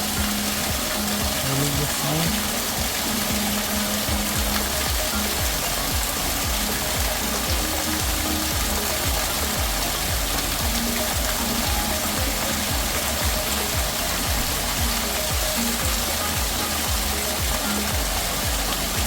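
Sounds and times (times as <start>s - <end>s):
waterfall splashing: 0.0s - 19.0s.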